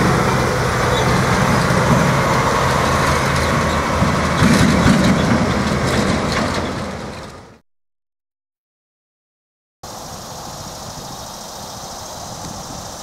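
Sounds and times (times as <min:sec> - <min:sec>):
low engine drone: 0:00.0 - 0:07.6
train rumbling past: 0:00.0 - 0:07.6.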